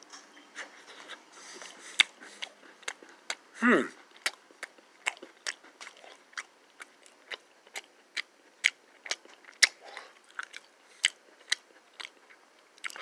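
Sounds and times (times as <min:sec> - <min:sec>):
crunchy chewing: 0:00.6 - 0:13.0.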